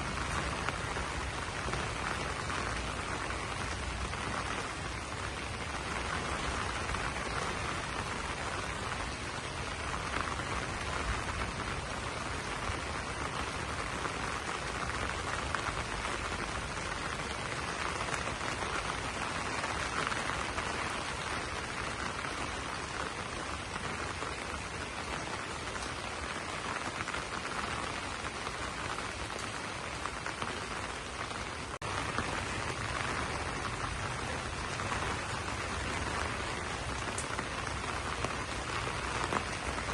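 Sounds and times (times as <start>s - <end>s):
rain pattering on leaves: 0.0s - 39.9s.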